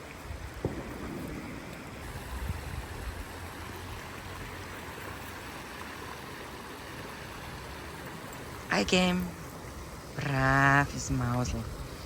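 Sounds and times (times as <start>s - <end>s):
river flowing: 0.0s - 12.0s
low rumbles: 0.2s - 4.7s.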